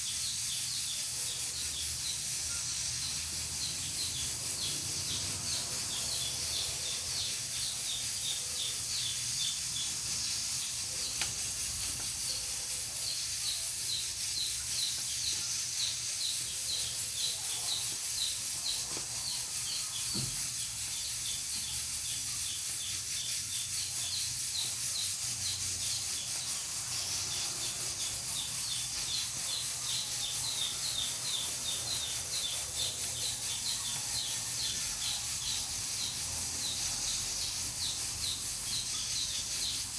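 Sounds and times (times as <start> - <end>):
pressure cooker hissing: 0.0 - 39.9.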